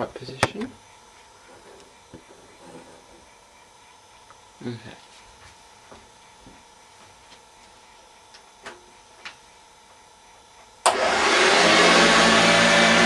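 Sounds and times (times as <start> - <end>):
vacuum cleaner running: 10.8 - 13.0.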